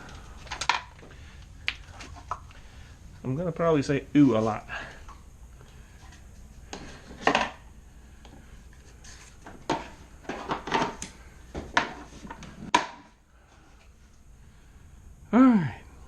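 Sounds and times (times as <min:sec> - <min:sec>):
hard objects knocking and clattering: 0:06.7 - 0:07.6, 0:09.4 - 0:13.1.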